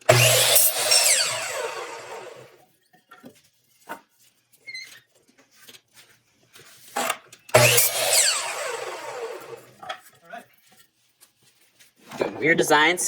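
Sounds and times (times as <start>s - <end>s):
power tool running: 0.0s - 2.6s, 7.5s - 9.8s.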